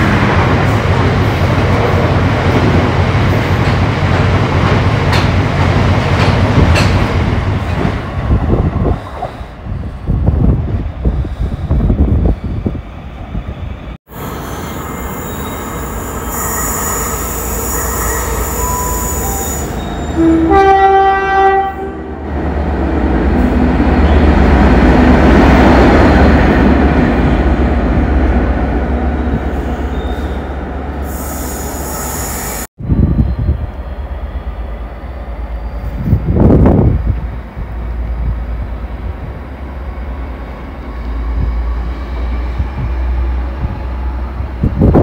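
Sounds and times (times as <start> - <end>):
train rumbling past: 0.0 - 45.0
train horn blast: 16.3 - 22.2.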